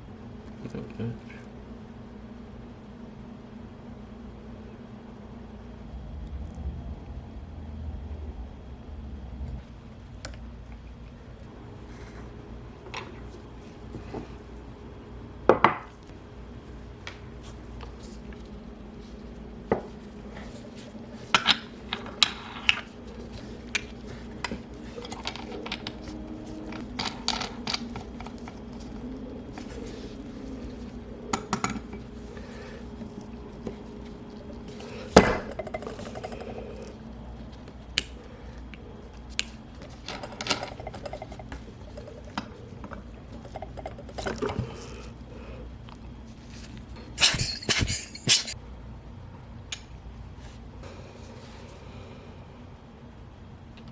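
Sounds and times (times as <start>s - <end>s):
faint steady hum: 0.0s - 53.9s
metal tools clinking on watch parts: 47.0s - 48.6s.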